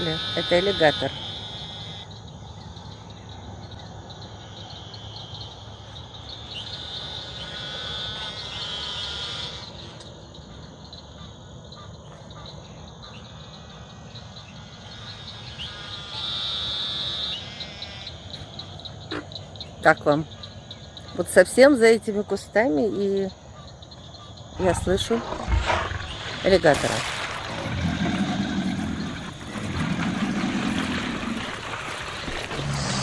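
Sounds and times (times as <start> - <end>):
frogs rapid pulsed calls: 0.0 - 33.0
high trilling of insects: 22.7 - 33.0.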